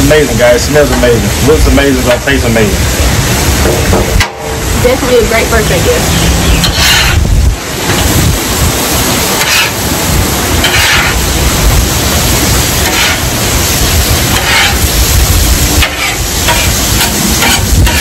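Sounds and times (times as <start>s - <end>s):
meat sizzling on a griddle: 0.0s - 18.0s
wind rumble on microphone: 2.6s - 18.0s
metal spatula scraping: 6.6s - 7.3s, 9.4s - 9.8s, 10.6s - 11.2s, 12.8s - 13.4s, 14.3s - 15.0s, 15.8s - 18.0s.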